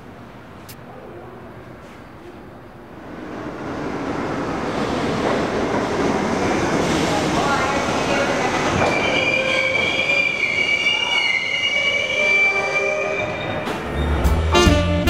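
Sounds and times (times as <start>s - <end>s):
rumble of moving train: 0.0s - 11.3s, 12.6s - 15.0s
train wheels squealing on rails: 6.8s - 14.4s
music: 14.0s - 15.0s.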